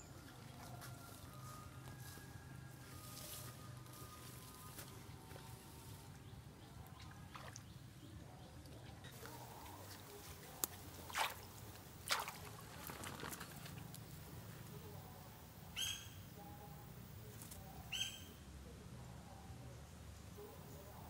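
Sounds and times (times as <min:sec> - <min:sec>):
bird calls: 0:15.8 - 0:16.6, 0:17.9 - 0:18.4.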